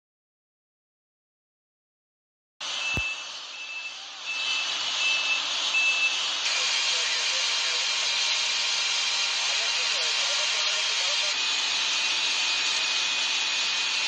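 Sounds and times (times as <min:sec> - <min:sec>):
vehicle reversing alarm beeping: 0:02.7 - 0:06.2.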